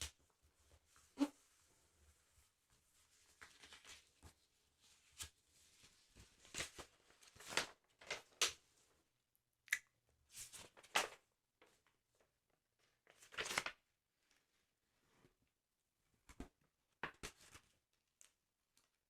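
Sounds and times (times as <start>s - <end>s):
paper rustles and taps: 6.1s - 8.6s, 10.6s - 11.8s, 13.1s - 13.8s, 16.3s - 17.7s.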